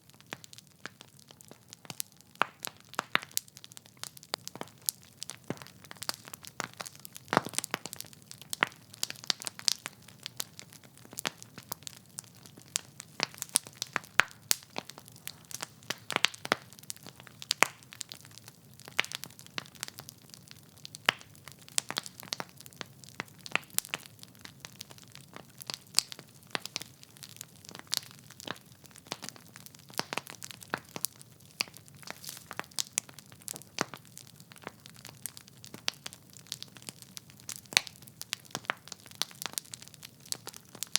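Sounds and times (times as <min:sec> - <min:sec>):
logs crackling and popping: 0:00.0 - 0:40.9
soft hiss of fire: 0:24.7 - 0:40.9.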